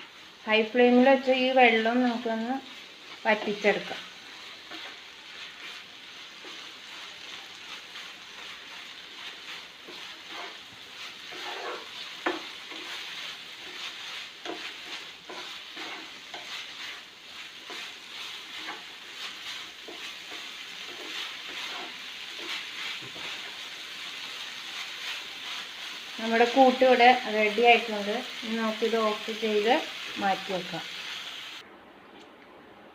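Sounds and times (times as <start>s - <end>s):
food sizzling in a pan: 0.0s - 31.6s
spoon scraping a pan: 4.4s - 27.2s.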